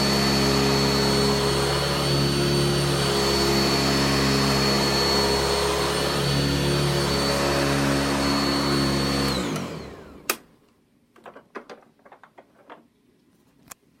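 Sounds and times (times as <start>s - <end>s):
vacuum motor whining: 0.0s - 10.5s.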